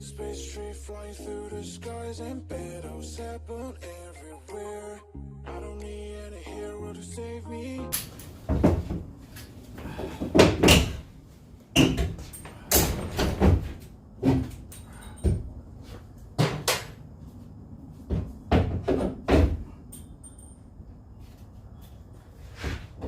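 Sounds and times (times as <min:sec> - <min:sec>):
heavy knocks on wooden framing: 0:08.5 - 0:09.2, 0:09.9 - 0:11.1, 0:18.1 - 0:19.7.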